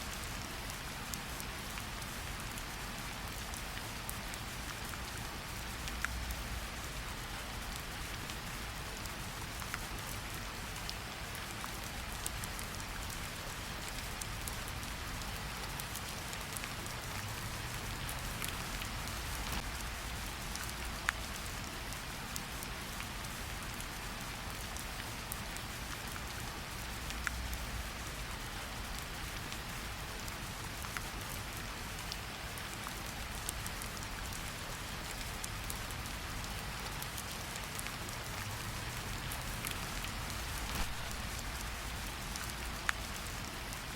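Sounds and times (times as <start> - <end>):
rain falling: 0.0 - 43.9
raindrop ticks: 10.8 - 23.9, 24.5 - 43.8.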